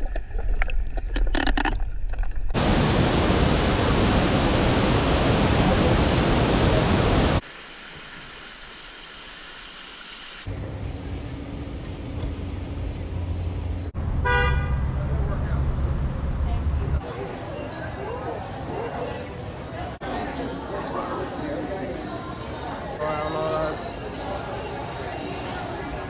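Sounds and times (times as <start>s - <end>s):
waterfall roar: 2.6s - 7.4s.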